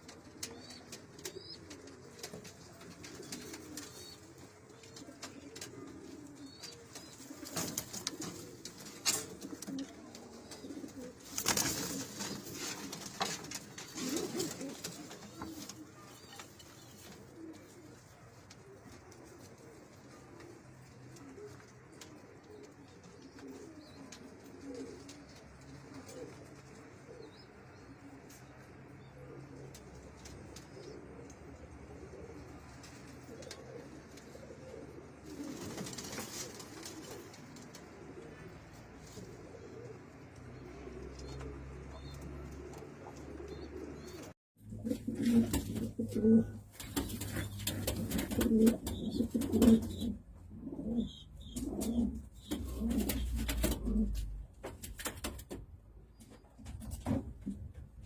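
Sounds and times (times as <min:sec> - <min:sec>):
rustling noises: 0:00.0 - 0:27.2, 0:29.6 - 0:43.4
pigeons cooing: 0:00.0 - 0:57.8.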